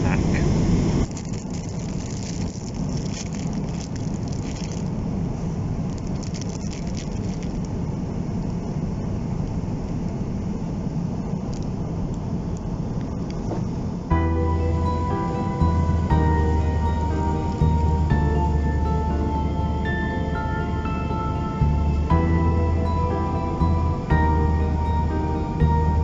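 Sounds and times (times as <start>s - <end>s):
airplane cabin drone: 0.0s - 26.0s
faint clicks and rustles: 1.0s - 5.0s, 5.8s - 7.8s
soft music: 14.1s - 26.0s.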